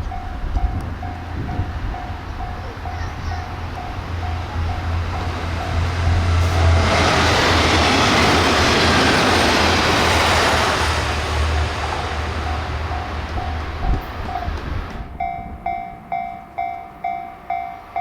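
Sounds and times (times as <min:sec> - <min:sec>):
diesel railcar passing: 0:00.0 - 0:18.0
level crossing bell ringing: 0:15.1 - 0:18.0.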